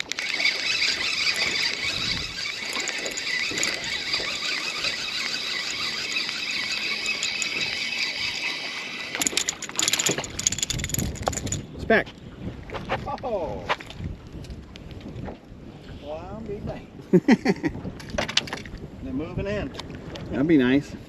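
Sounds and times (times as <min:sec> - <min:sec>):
fishing reel whirring: 0:00.0 - 0:11.6
sharp clicks and knocks: 0:09.1 - 0:11.6.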